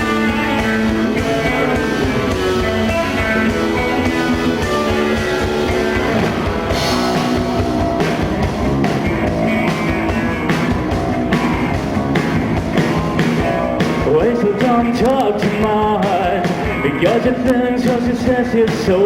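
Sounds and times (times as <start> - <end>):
guitars ringing chords: 0.0 - 18.0
rock band playing: 0.0 - 19.0
drum hits: 1.2 - 18.2
cymbal swell: 5.7 - 9.5.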